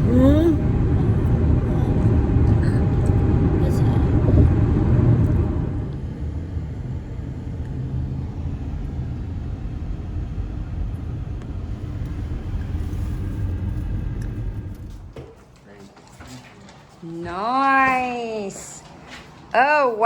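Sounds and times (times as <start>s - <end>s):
car interior road rumble: 0.0s - 15.5s.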